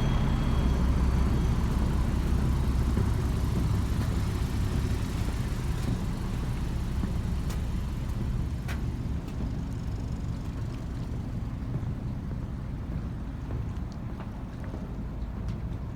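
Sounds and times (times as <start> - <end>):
ferry engine rumbling: 0.0 - 15.9.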